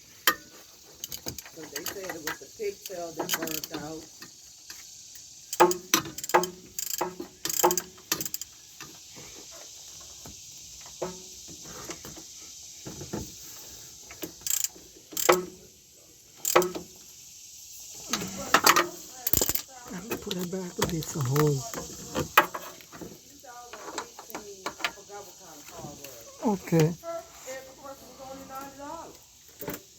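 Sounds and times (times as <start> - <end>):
metal tools clinking: 18.2 - 22.3.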